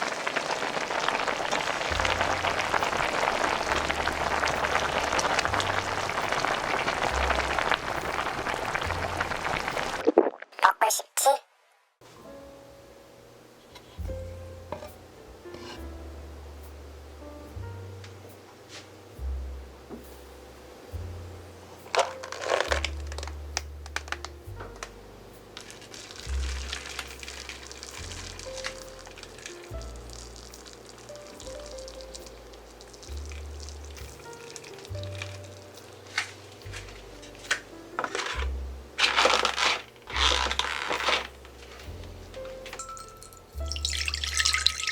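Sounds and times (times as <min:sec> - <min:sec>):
broth boiling hard: 0:00.0 - 0:10.5, 0:25.3 - 0:42.2, 0:42.8 - 0:44.9
background music with bass: 0:01.8 - 0:10.0, 0:14.0 - 0:44.9
plastic packaging crinkling: 0:21.9 - 0:24.9, 0:25.6 - 0:44.9.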